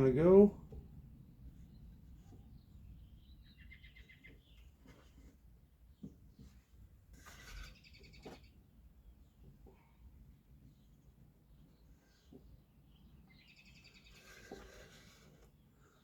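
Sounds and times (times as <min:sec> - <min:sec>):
bird chirps: 0:02.6 - 0:04.7, 0:12.8 - 0:14.3.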